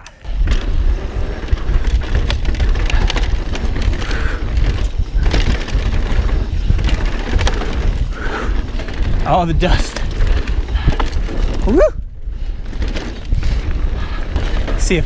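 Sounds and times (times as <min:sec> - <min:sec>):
bike rattling and knocking: 0:00.0 - 0:15.0
wind buffeting microphone: 0:00.2 - 0:15.0.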